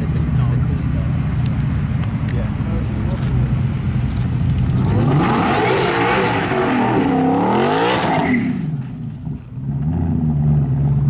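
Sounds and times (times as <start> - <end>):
lower steady engine note: 0.0 - 5.3, 8.4 - 11.0
racing car engine revving: 4.3 - 11.0.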